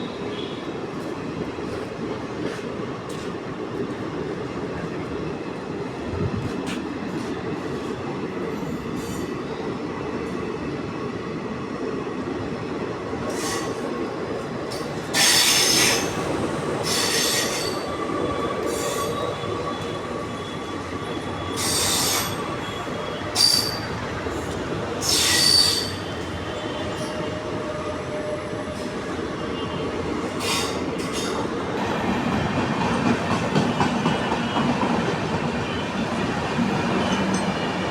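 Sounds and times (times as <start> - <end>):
train rumbling on rails: 0.0 - 37.9
train wheels squealing: 8.5 - 9.9, 13.2 - 14.0, 14.7 - 31.6, 32.8 - 37.9.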